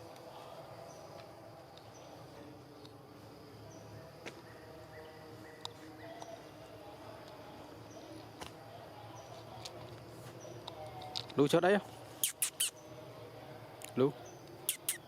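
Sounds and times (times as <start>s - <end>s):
sharp clicks: 12.2s - 12.7s, 14.7s - 15.0s
small animals chirping: 12.2s - 12.9s, 14.6s - 15.0s.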